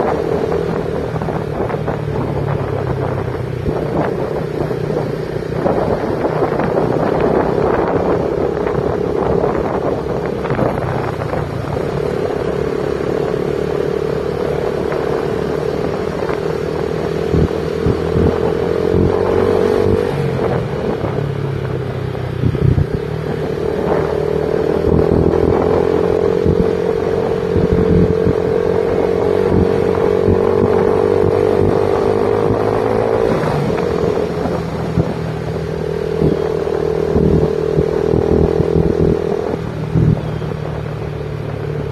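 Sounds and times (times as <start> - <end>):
motorcycle engine running: 0.0 - 41.9
road noise: 0.0 - 41.9.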